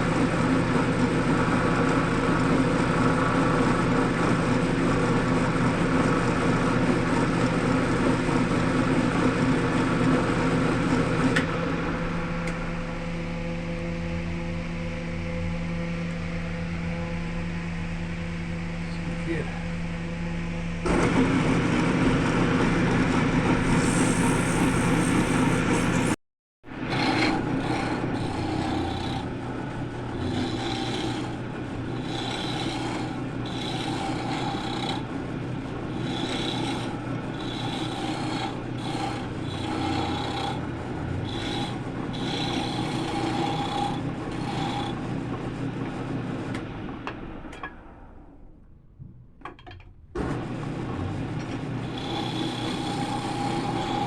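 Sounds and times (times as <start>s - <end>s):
wood lathe motor hum: 0.0s - 20.0s, 20.8s - 47.6s, 50.2s - 54.0s
tool scraping spinning wood: 20.8s - 46.6s, 50.2s - 54.0s.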